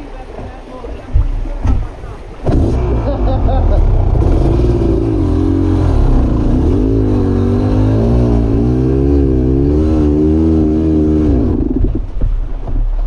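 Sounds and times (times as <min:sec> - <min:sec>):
dirt bike engine revving: 0:02.4 - 0:12.0.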